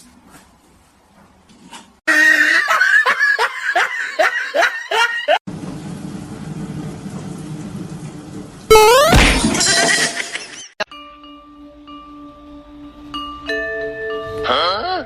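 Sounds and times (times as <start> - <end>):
person laughing: 2.1 - 5.4.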